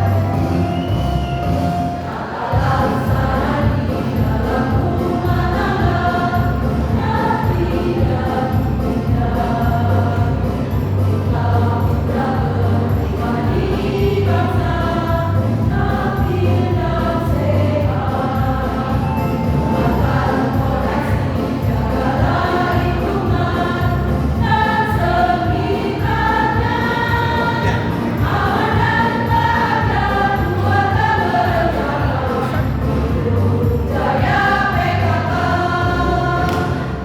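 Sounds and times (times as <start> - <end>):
choir singing: 0.0 - 37.0
pulsing low instrumental music: 2.6 - 37.0.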